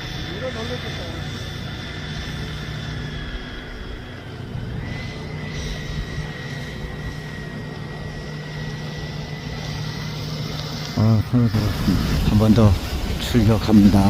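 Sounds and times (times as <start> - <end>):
electric ducted fans whining: 0.0 - 14.0
wind rumble on microphone: 0.0 - 14.0.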